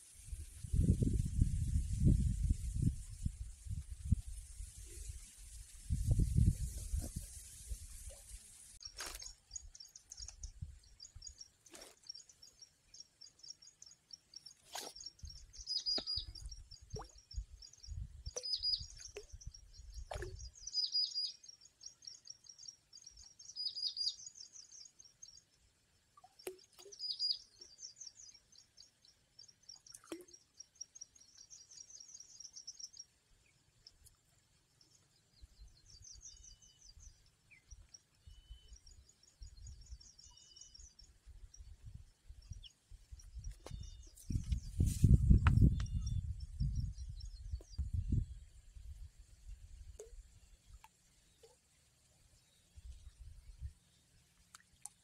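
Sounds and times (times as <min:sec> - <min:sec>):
small birds chirping: 0:08.8 - 0:25.5, 0:26.2 - 0:33.2, 0:33.8 - 0:48.4.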